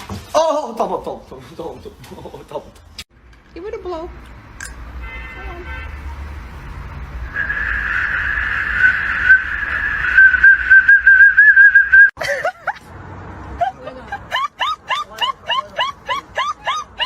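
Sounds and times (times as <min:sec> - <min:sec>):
high whistle-like tone: 0:07.2 - 0:12.2.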